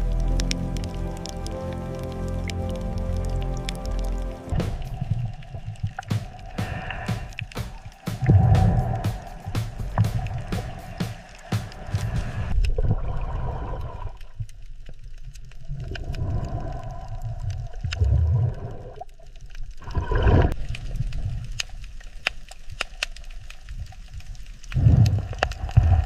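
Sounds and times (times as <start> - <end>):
underwater water rumbling: 0.0 - 22.2, 23.8 - 26.0
water gurgles: 0.0 - 26.0
underwater clicks: 2.4 - 12.9.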